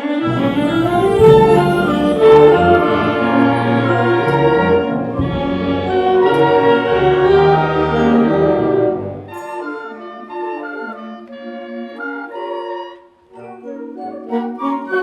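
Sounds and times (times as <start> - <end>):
concert band playing: 0.3 - 8.0.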